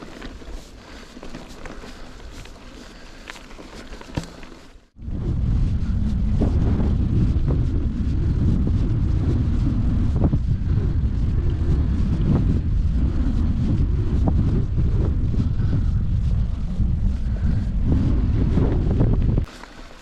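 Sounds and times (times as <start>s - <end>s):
bike knocking on rough ground: 0.0s - 4.8s
wind buffeting microphone: 5.0s - 19.5s.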